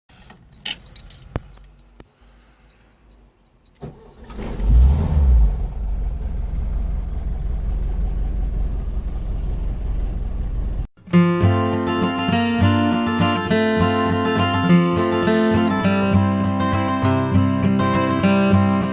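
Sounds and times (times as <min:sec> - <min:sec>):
engine cranking and starting: 0:03.7 - 0:10.9
engine idling: 0:05.4 - 0:10.9.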